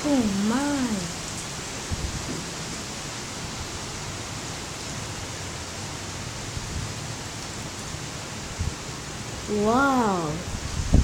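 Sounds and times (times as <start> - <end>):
driving rain: 0.0 - 11.0
wind buffeting microphone: 1.8 - 2.7, 10.4 - 11.0
wind rushing: 10.5 - 11.0.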